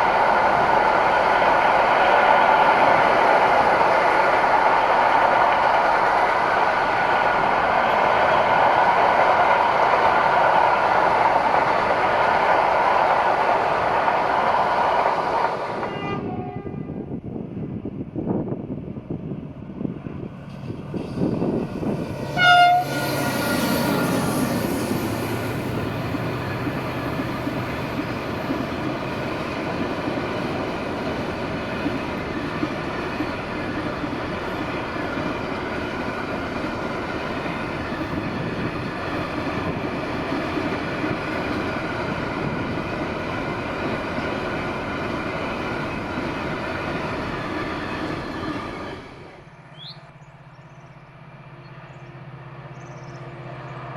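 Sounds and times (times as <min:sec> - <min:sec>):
train wheels rumbling on rails: 0:00.0 - 0:53.9
train horn blast: 0:15.8 - 0:17.0, 0:22.2 - 0:24.5.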